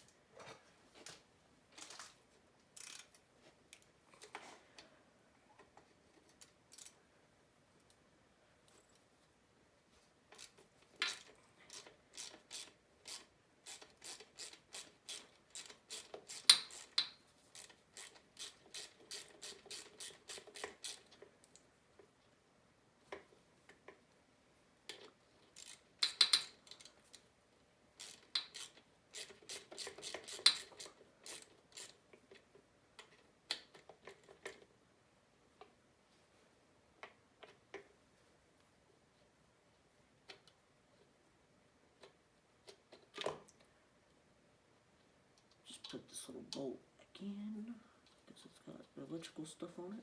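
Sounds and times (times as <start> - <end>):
ratchet wrench clicking: 2.8 - 3.1, 10.4 - 21.0, 25.6 - 26.9, 28.0 - 32.0.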